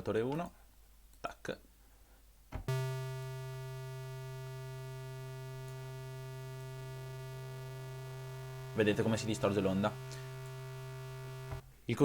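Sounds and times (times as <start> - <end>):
buzzy synthesizer note: 2.7 - 11.6.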